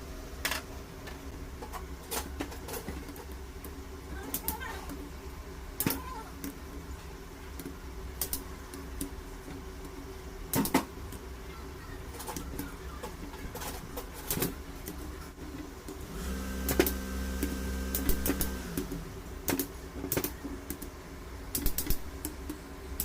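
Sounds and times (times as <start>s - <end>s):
steady low hum: 14.6s - 23.0s
small machine running: 16.0s - 19.4s.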